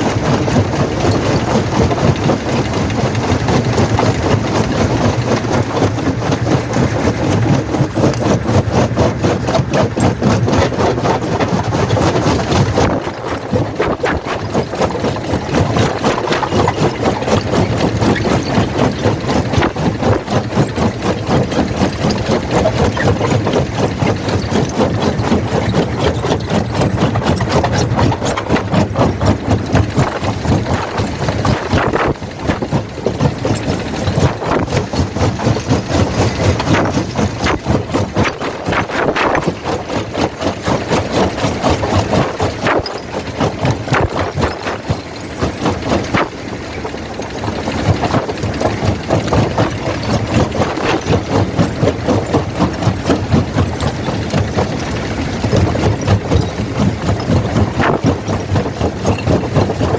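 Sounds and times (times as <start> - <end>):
jaw crusher breaking rock: 0.0 - 59.9.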